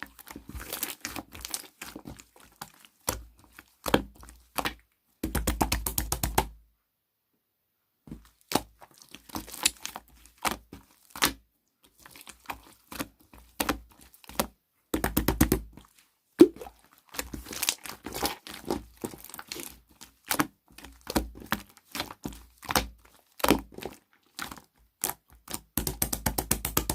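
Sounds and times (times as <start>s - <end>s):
slime squeezed by hand popping: 16.4s - 16.8s.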